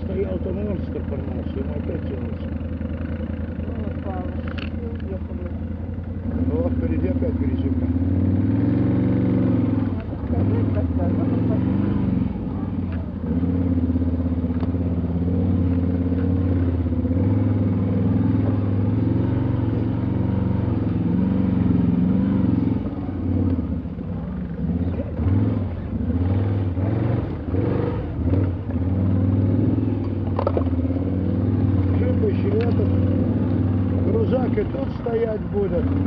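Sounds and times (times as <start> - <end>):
off-road vehicle engine running: 0.0 - 36.0
vehicle knocks and rattles: 30.0 - 30.9.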